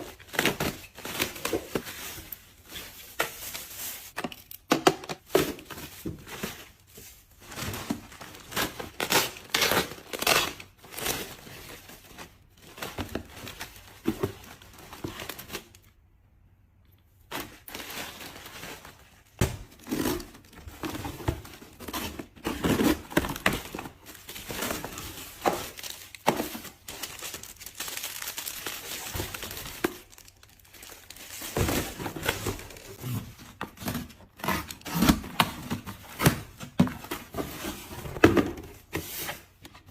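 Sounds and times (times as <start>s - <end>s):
packaging crinkling and tearing: 17.3s - 36.7s.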